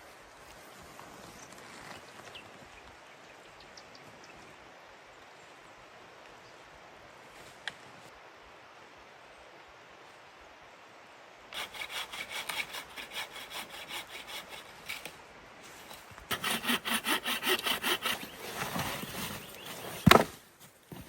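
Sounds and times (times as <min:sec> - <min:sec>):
hand saw cutting wood: 0:11.6 - 0:15.1, 0:16.3 - 0:20.4.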